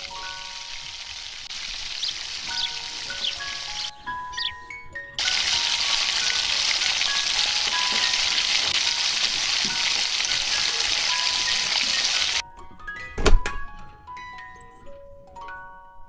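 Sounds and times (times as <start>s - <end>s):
paste sizzling in hot oil: 0.2s - 3.9s, 5.2s - 12.4s.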